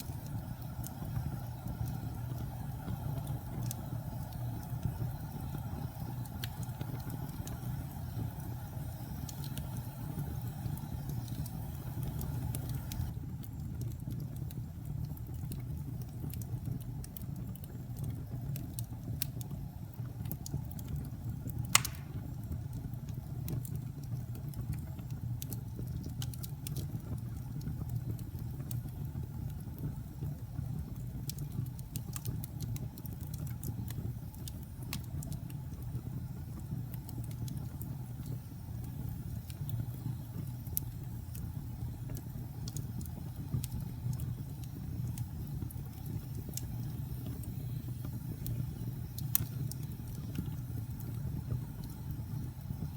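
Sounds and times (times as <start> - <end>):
fire crackling: 0.0 - 52.9
fire rumbling: 0.0 - 52.9
sharp pop from fire: 21.6 - 22.5.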